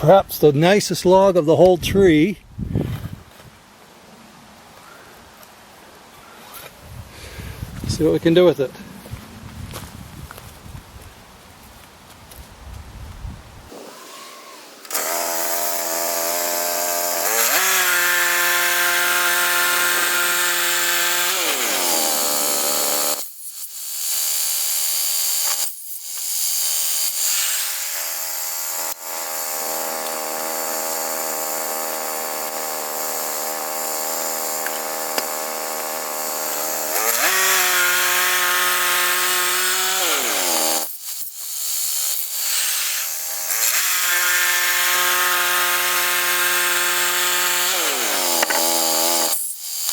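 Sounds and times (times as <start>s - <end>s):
bandsaw mill engine running: 13.7s - 23.2s, 27.8s - 40.9s, 41.8s - 49.9s.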